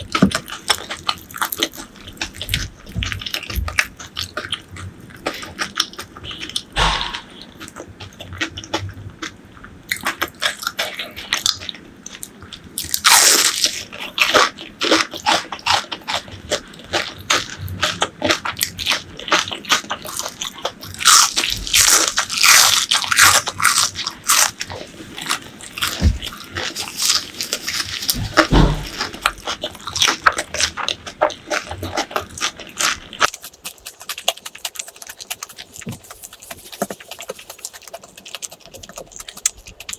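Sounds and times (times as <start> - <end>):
crunching bites and chewing: 0.0 - 39.9.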